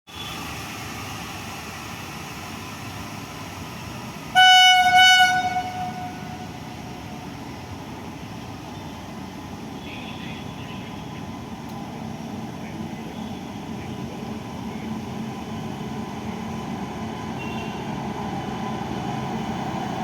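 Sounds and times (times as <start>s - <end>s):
rail yard rumble: 0.1s - 20.0s
locomotive horn blasts: 4.4s - 6.7s, 17.4s - 17.9s.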